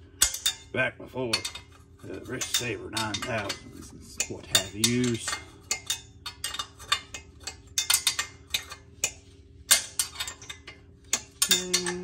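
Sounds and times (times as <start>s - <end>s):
wrench clinking on metal bolt: 0.2s - 0.6s.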